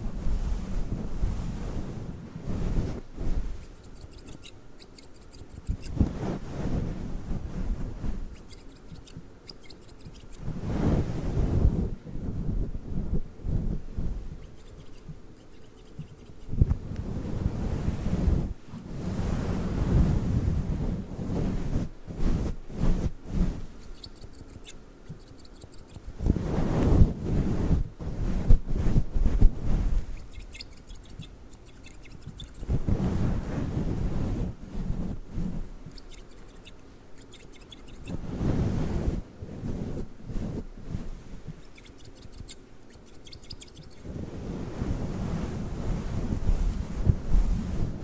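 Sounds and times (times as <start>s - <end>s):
windscreen rubbing on microphone: 0.0s - 48.0s
scissors snipping: 3.6s - 5.9s, 8.4s - 10.4s.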